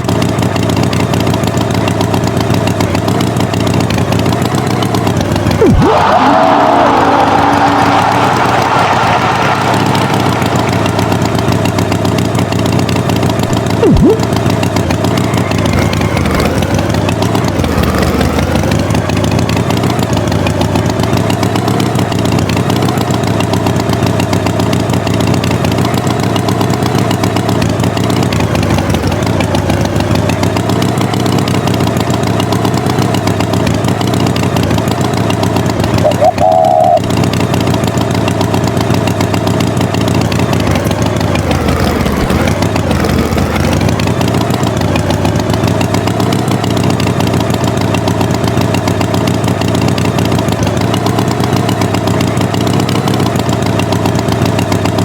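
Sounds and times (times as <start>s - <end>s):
tractor engine idling: 0.0s - 55.0s
brief higher tone: 36.0s - 37.1s.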